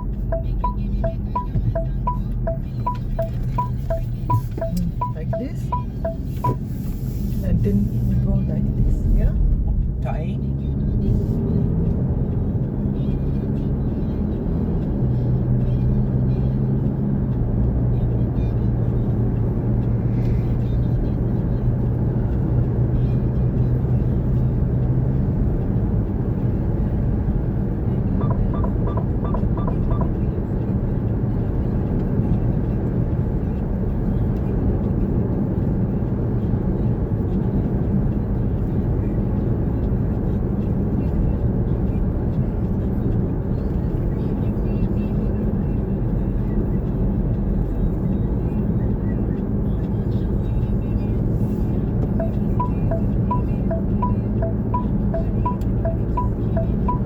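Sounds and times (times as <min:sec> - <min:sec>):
short high beeps: 0:00.0 - 0:06.7, 0:28.2 - 0:30.1, 0:52.2 - 0:57.0
car engine hum inside car: 0:00.0 - 0:57.0.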